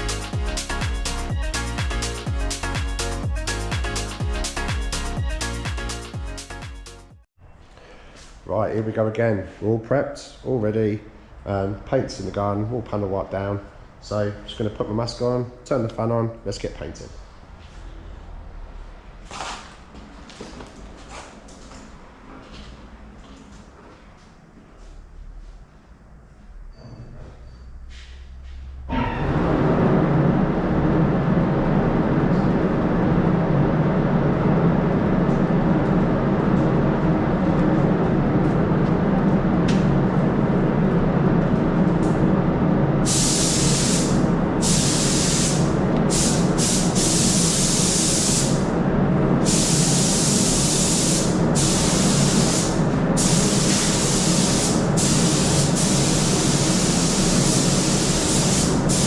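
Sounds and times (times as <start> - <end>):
extraction fan running: 29.3 - 59.0
spray gun hissing: 43.0 - 48.7, 49.4 - 59.0.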